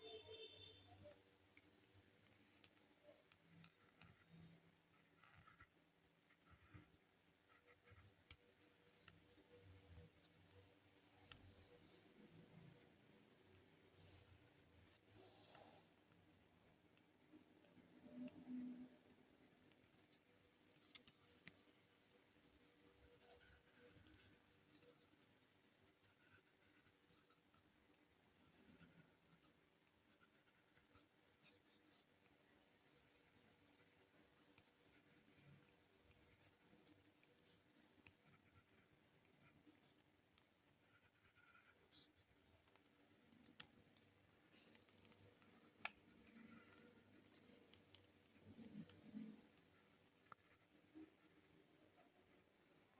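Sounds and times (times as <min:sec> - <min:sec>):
drawing tool scratching on paper: 0:22.4 - 0:27.7, 0:28.4 - 0:43.7, 0:44.5 - 0:52.9.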